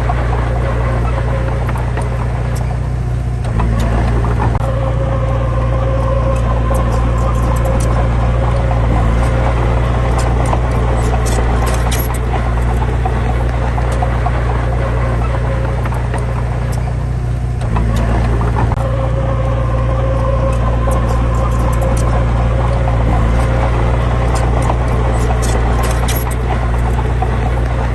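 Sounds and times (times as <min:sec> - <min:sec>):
diesel engine running: 0:00.0 - 0:27.9
steady whine: 0:00.0 - 0:27.9.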